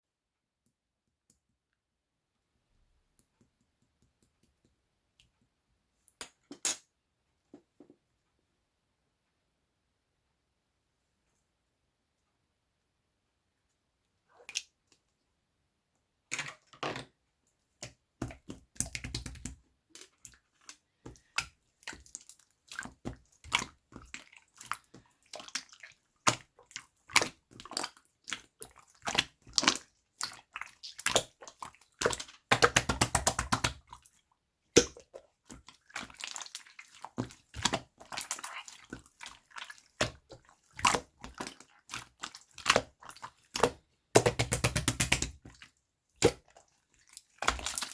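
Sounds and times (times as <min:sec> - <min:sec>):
slime squished by hand: 0:21.1 - 0:34.2, 0:34.8 - 0:47.9.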